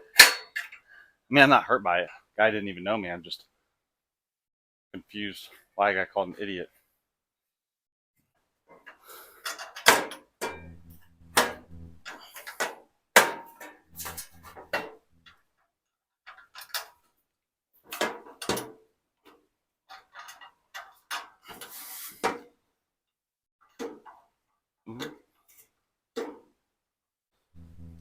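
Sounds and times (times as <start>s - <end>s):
griddle parts knocking and clanking: 9.5s - 15.0s
short low hums: 10.5s - 12.3s, 13.9s - 15.3s, 27.6s - 28.0s.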